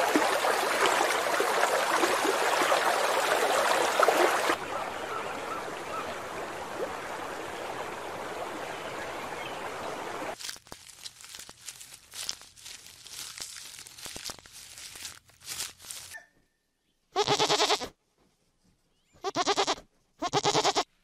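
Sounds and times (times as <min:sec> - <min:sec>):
leaves crackling and snapping: 0:10.4 - 0:16.2
sheep bleating: 0:17.1 - 0:17.9, 0:19.2 - 0:20.9.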